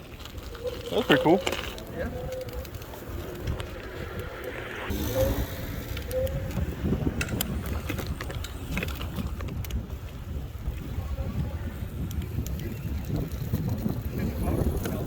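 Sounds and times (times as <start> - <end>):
wind buffeting microphone: 0.0 - 15.0
steady low rumble: 1.7 - 10.6.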